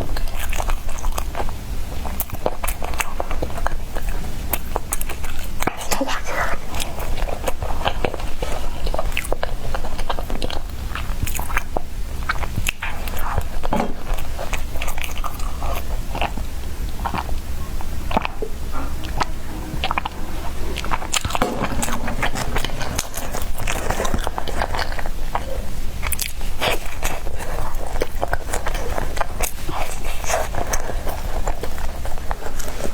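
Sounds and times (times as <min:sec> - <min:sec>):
steady low hum: 0:13.0 - 0:26.6.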